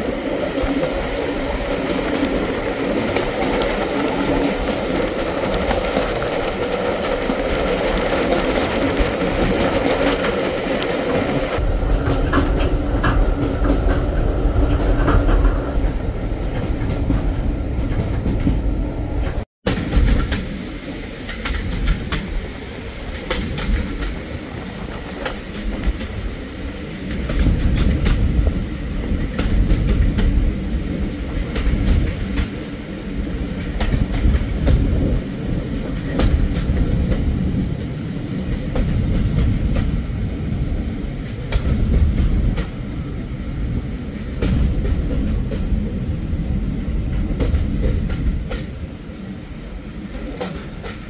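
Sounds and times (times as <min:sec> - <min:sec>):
railway carriage rumble: 0:00.0 - 0:51.0
wheels clicking over rail joints: 0:21.2 - 0:37.5, 0:50.0 - 0:51.0.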